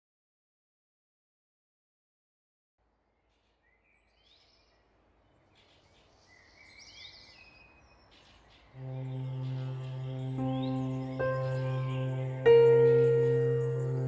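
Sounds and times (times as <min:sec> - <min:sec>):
birds chirping: 0:03.6 - 0:14.0
music: 0:08.8 - 0:14.0.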